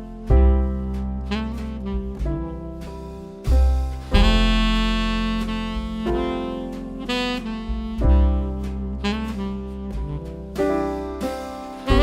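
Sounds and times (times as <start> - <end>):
walking double bass: 0.0 - 12.0
saxophone long notes: 1.3 - 2.7, 4.1 - 10.8.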